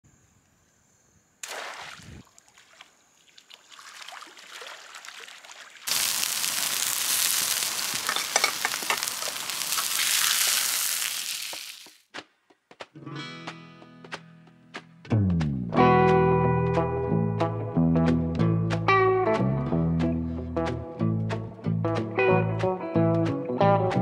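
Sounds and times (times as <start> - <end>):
net splashing into water: 1.4 - 7.4
food sizzling on hotplate: 5.9 - 12.0.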